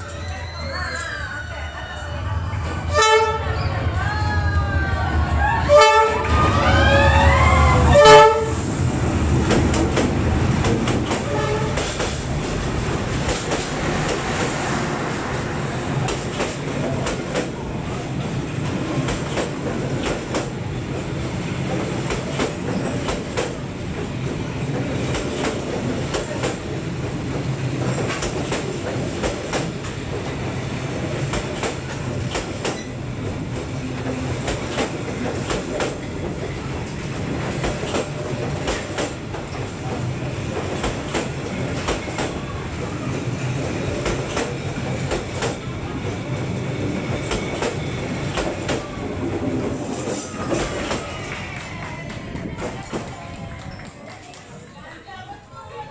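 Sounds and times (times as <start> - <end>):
train coaches rumbling: 0.0 - 55.9
train horn: 2.9 - 3.6, 5.4 - 8.7, 11.2 - 11.9.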